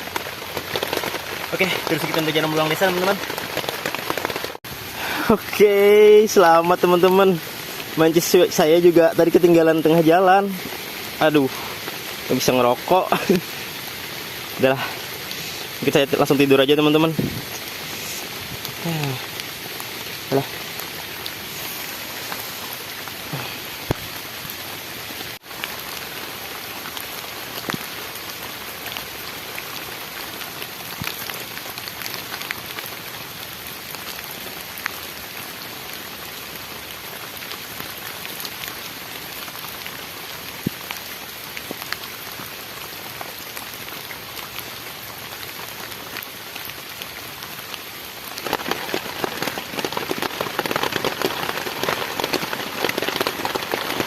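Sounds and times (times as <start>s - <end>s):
heavy rain falling: 0.0s - 54.0s
drops ticking: 48.4s - 54.0s.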